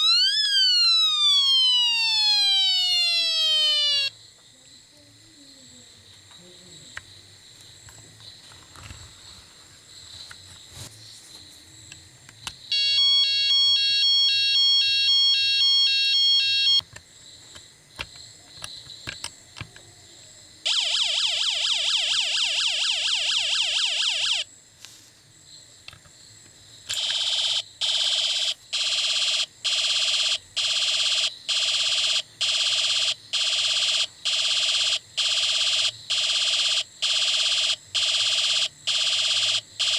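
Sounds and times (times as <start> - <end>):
beeping alarm: 0.0 - 4.1, 12.7 - 16.8, 27.0 - 39.9
fast warbling siren: 0.0 - 4.1, 12.7 - 16.8, 20.7 - 24.5, 27.3 - 39.9
pulsing stepped-tone alarm: 0.0 - 4.1, 12.7 - 16.8, 20.7 - 24.5, 27.0 - 39.9.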